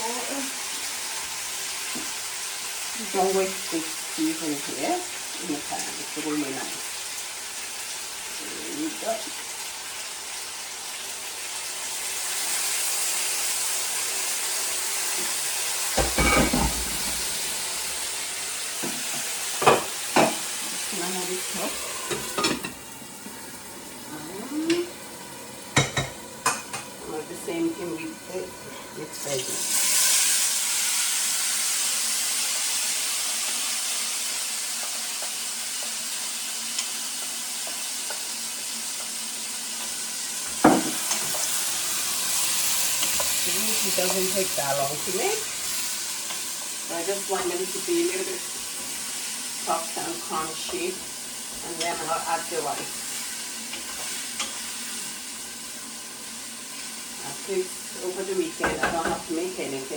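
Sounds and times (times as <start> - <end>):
food sizzling in oil: 0.0 - 59.9
pan or utensil clatter: 16.0 - 17.5.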